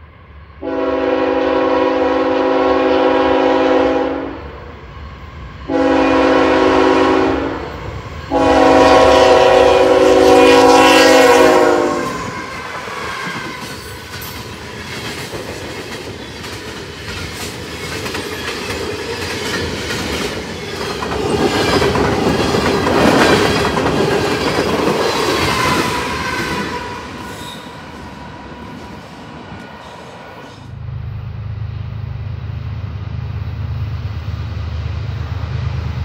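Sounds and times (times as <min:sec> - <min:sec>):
locomotive horn chord: 0:00.6 - 0:04.5, 0:05.7 - 0:12.4
train wheels clattering over joints: 0:13.2 - 0:26.7.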